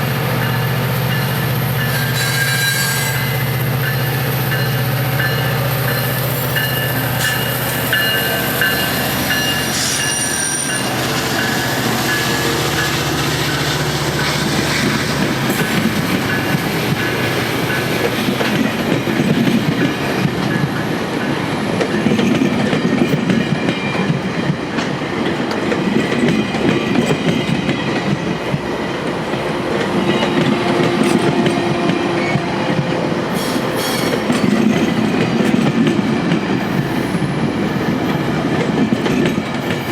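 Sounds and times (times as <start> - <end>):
train wheels clacking over rail joints: 1.8 - 39.9
wheel squeal: 1.9 - 3.4, 9.6 - 10.9.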